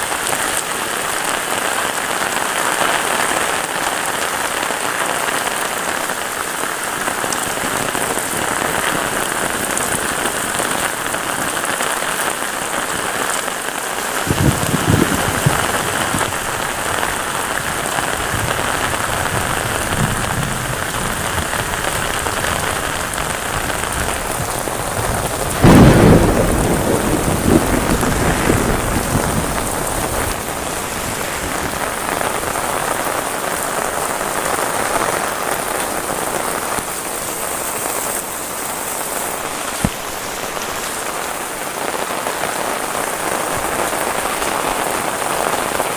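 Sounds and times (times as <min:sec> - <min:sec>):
heavy rain: 0:00.0 - 0:45.9
thunder rumbling: 0:14.1 - 0:35.0.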